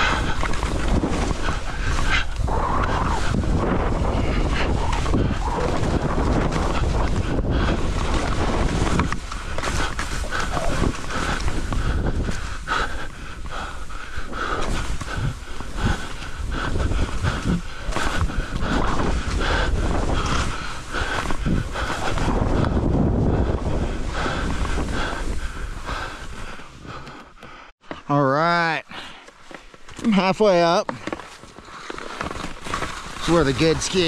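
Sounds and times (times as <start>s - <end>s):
wind buffeting microphone: 0.0s - 27.1s.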